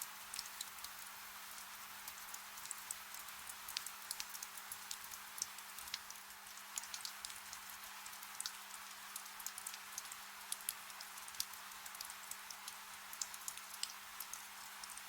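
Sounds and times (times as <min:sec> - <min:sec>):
soft rain hiss: 0:00.0 - 0:15.0
raindrops ticking: 0:02.1 - 0:15.0.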